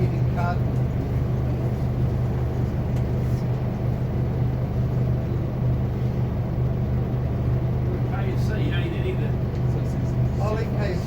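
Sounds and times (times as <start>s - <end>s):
bus diesel engine droning: 0.0s - 11.0s
road noise: 0.0s - 11.0s.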